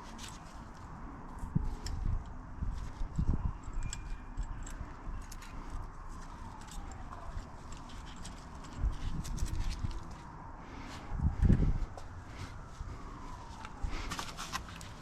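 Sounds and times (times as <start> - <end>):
light metallic clicks and clinks: 3.5 - 10.2.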